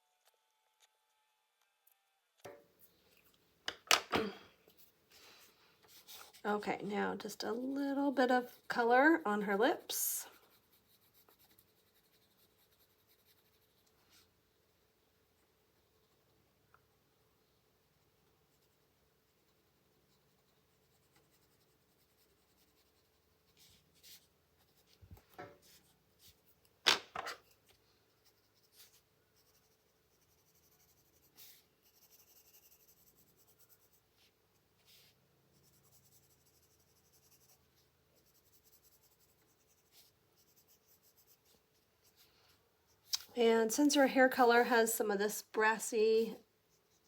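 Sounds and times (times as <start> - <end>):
pencil scratching on paper: 5.9 - 14.3, 18.5 - 25.0, 27.4 - 42.2.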